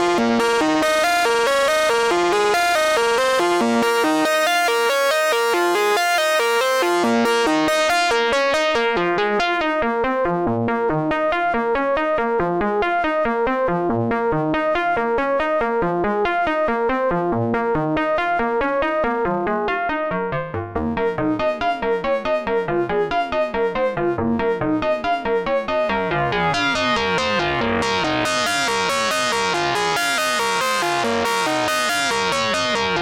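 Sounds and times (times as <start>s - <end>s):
synthesizer playing fast sequence: 0.0s - 9.6s, 25.7s - 33.0s.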